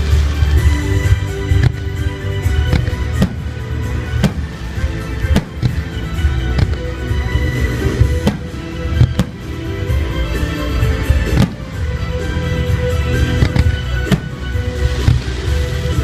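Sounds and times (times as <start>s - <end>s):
music with deep bass: 0.0s - 16.0s
fireworks bursting in bangs: 0.1s - 7.1s, 7.9s - 10.0s, 11.2s - 12.1s, 13.2s - 16.0s.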